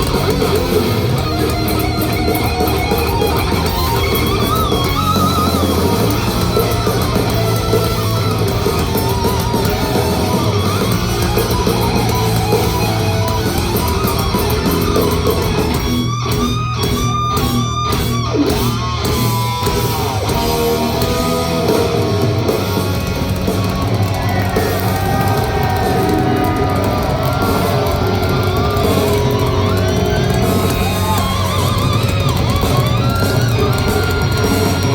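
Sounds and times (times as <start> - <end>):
heavy metal band playing live: 0.0 - 34.9.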